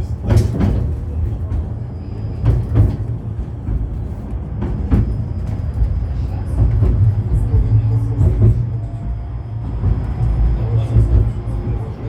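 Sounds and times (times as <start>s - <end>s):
tram running rumble: 0.0s - 12.0s
sharp knocks and clatters: 0.2s - 1.7s.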